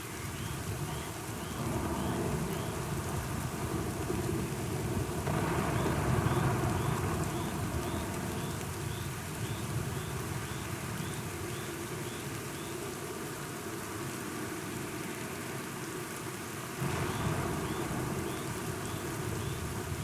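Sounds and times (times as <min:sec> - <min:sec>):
steady rain: 0:00.0 - 0:20.0
rolling thunder rumble: 0:00.6 - 0:11.4, 0:16.8 - 0:20.0.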